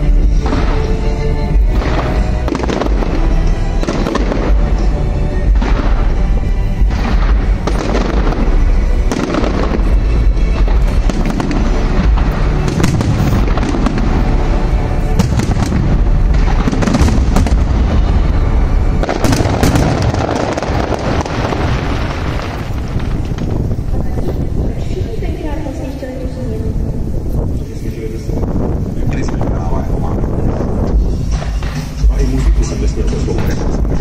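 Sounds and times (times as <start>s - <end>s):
deep booms: 0.0s - 25.6s
fireworks bursting and crackling: 0.0s - 34.0s
music playing: 0.0s - 34.0s.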